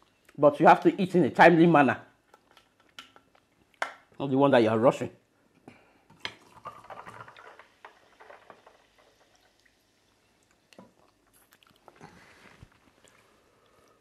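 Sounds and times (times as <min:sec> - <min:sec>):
chewing and wet squishing: 0:02.3 - 0:03.8, 0:09.3 - 0:14.0.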